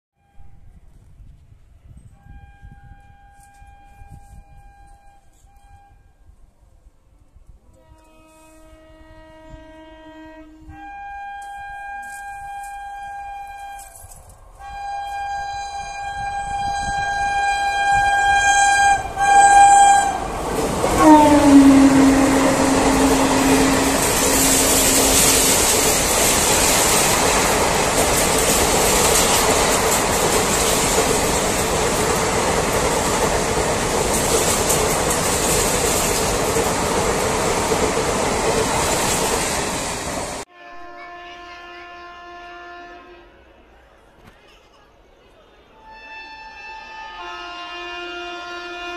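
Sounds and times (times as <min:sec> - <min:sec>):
train horn blast: 0:00.2 - 0:00.8, 0:01.8 - 0:06.3, 0:07.5 - 0:33.3, 0:38.4 - 0:43.8, 0:45.7 - 0:48.9
train coaches rushing and rattling: 0:15.3 - 0:40.4.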